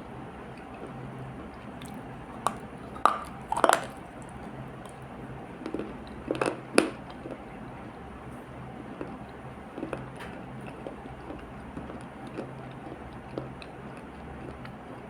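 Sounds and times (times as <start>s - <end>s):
wet paste crunching and squishing: 1.8s - 5.0s.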